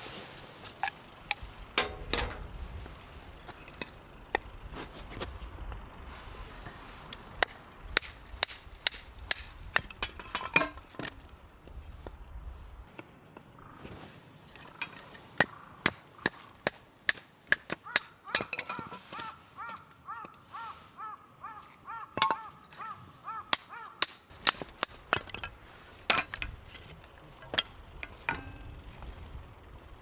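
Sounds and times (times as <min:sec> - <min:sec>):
bird calling short notes: 0:17.8 - 0:24.0.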